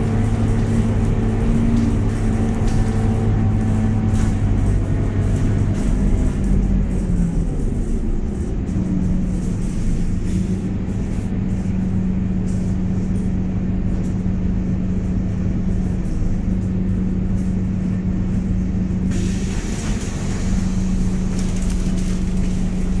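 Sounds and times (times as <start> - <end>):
bus gearbox whine: 0.0 - 23.0
diesel engine drone: 0.0 - 23.0
hiss: 19.1 - 22.0.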